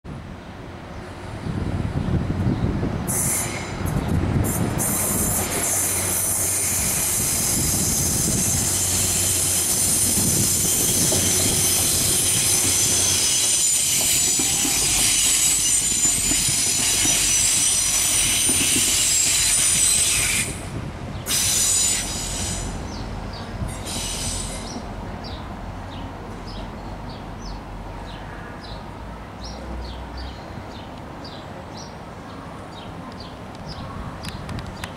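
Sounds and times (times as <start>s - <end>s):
train wheels squealing: 3.1s - 25.4s.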